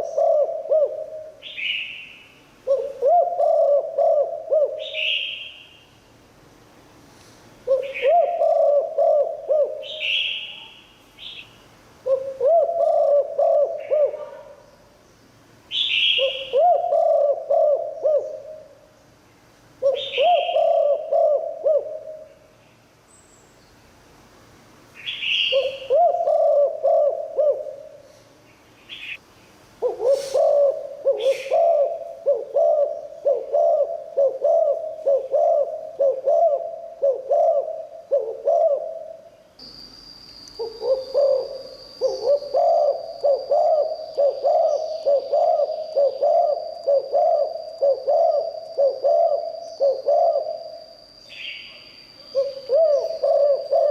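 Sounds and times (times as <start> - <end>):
dove cooing: 0.0 - 1.8, 2.6 - 5.5, 7.6 - 10.6, 12.0 - 14.7, 15.7 - 18.9, 19.8 - 22.4, 25.4 - 28.2, 29.8 - 39.3, 40.6 - 50.9, 52.3 - 53.9.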